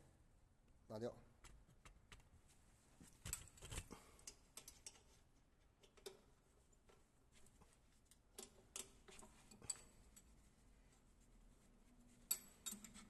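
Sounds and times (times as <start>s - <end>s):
metal parts clicking and tapping: 3.3s - 5.2s, 5.8s - 6.3s, 8.1s - 10.3s, 12.3s - 13.0s.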